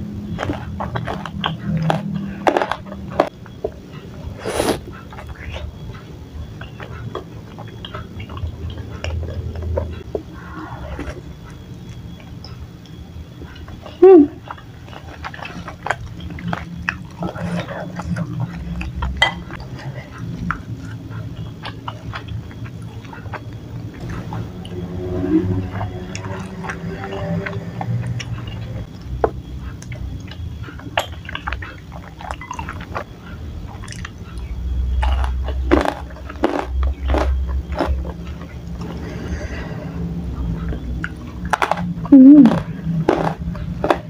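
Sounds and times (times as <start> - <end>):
wet chewing sounds: 0.0 - 44.0
low hum: 5.1 - 31.6.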